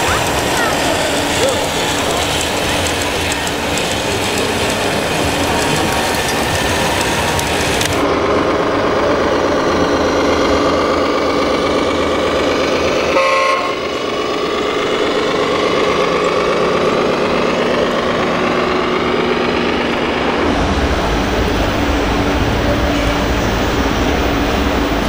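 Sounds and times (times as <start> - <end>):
model truck engine sound: 0.0 - 25.0
horn toot: 13.1 - 13.8.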